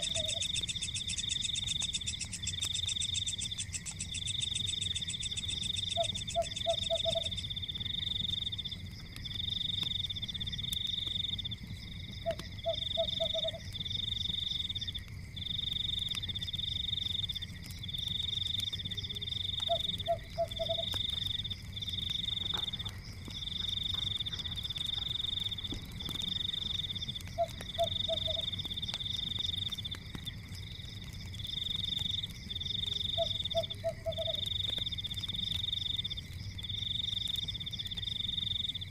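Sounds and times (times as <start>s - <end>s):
frog croaking: 0.0s - 7.5s, 12.2s - 13.7s, 19.1s - 21.2s, 22.2s - 28.6s, 32.9s - 34.5s
frogs trilling: 0.0s - 38.9s
wood fire crackling: 0.0s - 38.9s.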